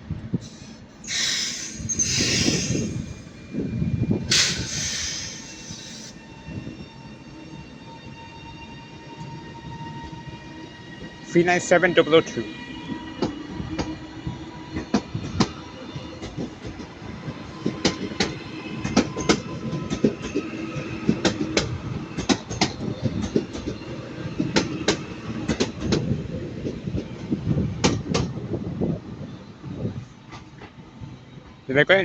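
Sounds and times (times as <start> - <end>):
train wheels clicking over rail joints: 4.3 - 6.2, 17.6 - 28.4.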